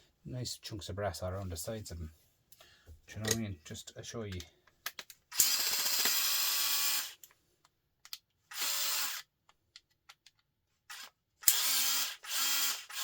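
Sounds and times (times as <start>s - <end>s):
cordless driver whirring: 8.5s - 9.3s, 10.9s - 13.0s.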